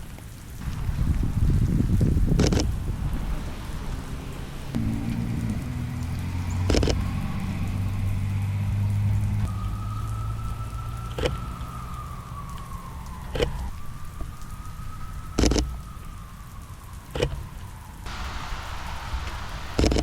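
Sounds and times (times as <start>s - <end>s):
steady rain: 0.0s - 20.0s
car engine low hum: 0.6s - 16.0s, 17.2s - 20.0s
sharp clicks: 2.3s - 2.8s, 5.1s - 7.1s, 11.1s - 13.9s, 15.4s - 16.1s, 19.8s - 20.0s
faint tone sliding down in pitch: 3.8s - 16.4s.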